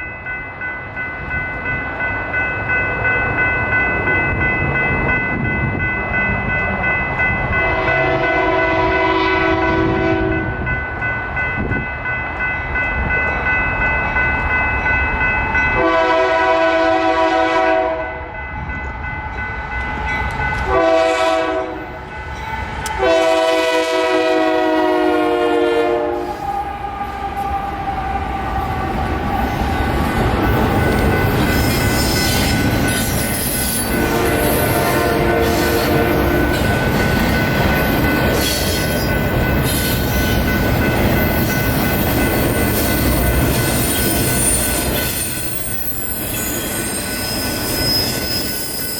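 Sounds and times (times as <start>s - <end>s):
train rumbling past: 0.0s - 48.9s
locomotive horn blasts: 7.7s - 10.6s, 15.8s - 18.2s, 20.7s - 22.0s, 23.0s - 26.4s, 33.9s - 36.6s.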